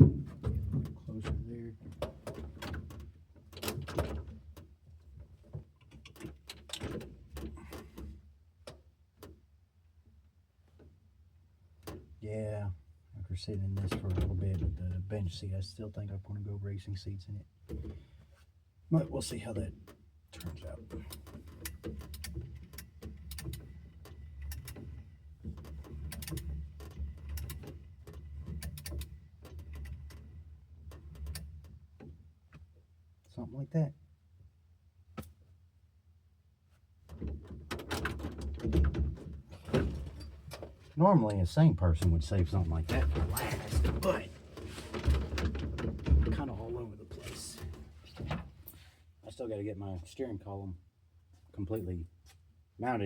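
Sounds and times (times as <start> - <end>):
light clicks and knocks: 19.5 - 32.8
clicks knocks and rustling: 42.9 - 46.6.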